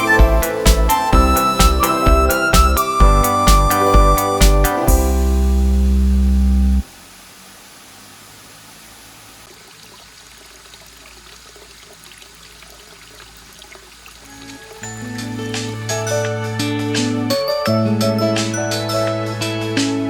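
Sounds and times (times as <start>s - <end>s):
background music chord: 0.0s - 6.8s, 14.3s - 20.0s
running water rushing: 0.0s - 17.2s.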